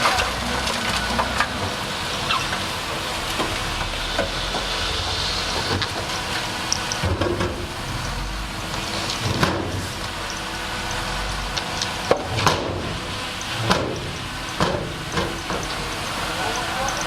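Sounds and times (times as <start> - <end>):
bulldozer diesel engine running: 0.0 - 17.0
noisy hiss: 0.0 - 17.0.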